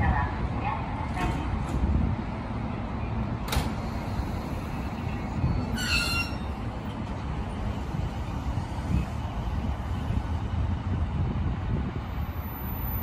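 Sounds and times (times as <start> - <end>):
high-pitched squeal: 4.4 - 6.7.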